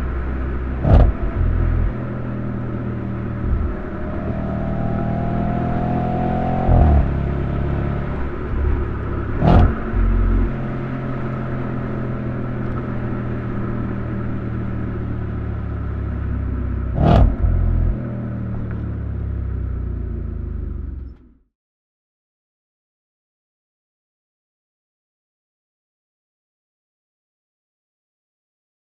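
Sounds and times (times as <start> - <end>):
sharp exhaust cracks: 0.0 - 21.1
car engine accelerating: 0.0 - 21.4
brief louder thump: 0.9 - 1.5, 9.4 - 10.0.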